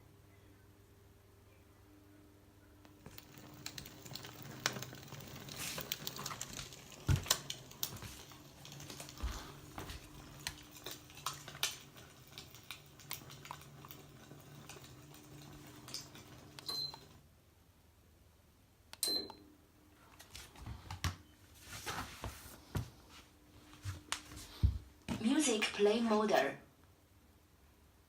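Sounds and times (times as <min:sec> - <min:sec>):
faint low hum: 0:00.0 - 0:28.0
firewood crackling through speaker: 0:03.0 - 0:16.6.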